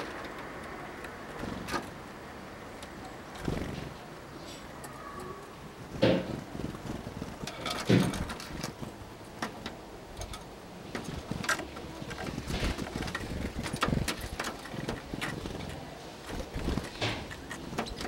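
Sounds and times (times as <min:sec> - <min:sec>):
birds pecking on wood: 0:00.0 - 0:04.2, 0:04.9 - 0:18.0
bird wings fluttering: 0:01.3 - 0:02.0, 0:03.3 - 0:04.0, 0:05.8 - 0:09.5, 0:10.8 - 0:18.0.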